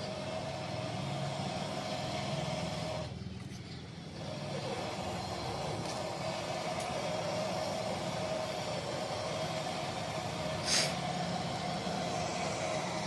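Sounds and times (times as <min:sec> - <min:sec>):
machine hum: 0:00.0 - 0:13.0
short hiss: 0:10.6 - 0:11.0.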